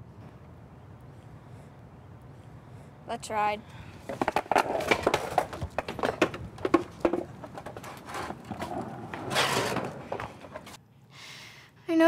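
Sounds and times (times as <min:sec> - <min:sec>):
skateboards clattering on pavement: 0:04.0 - 0:10.8.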